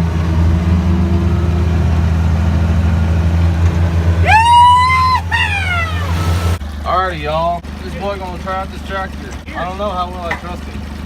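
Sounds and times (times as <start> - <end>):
utility vehicle engine running: 0.0 - 11.0
high-pitched wail: 4.2 - 6.6.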